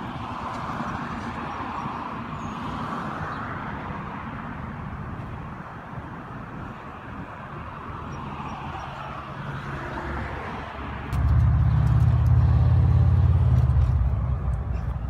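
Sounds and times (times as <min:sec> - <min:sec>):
car engine idling: 0:11.1 - 0:15.0.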